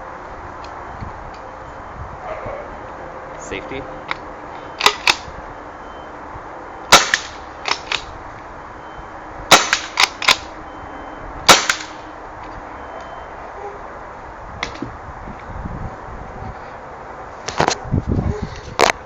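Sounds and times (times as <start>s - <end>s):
paintball gun shots: 6.9s - 8.1s, 9.5s - 10.5s, 11.5s - 12.0s.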